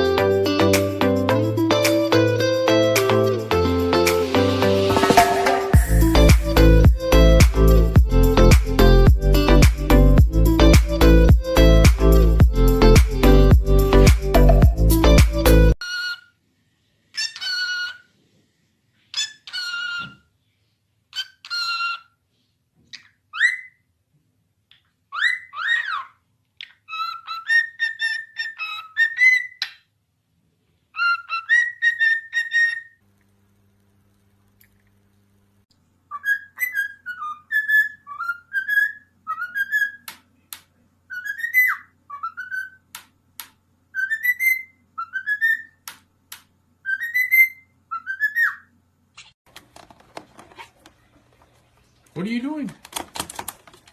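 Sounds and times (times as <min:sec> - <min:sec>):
parrot whistling: 0:31.0 - 0:33.0, 0:36.1 - 0:40.1, 0:41.1 - 0:42.9, 0:43.9 - 0:45.8, 0:46.8 - 0:48.7.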